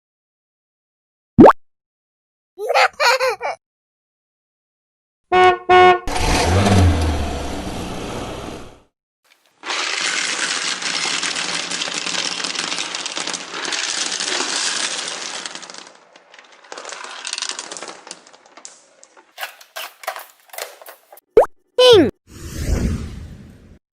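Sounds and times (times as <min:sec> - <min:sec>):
small hard pieces clattering: 0:09.3 - 0:21.1.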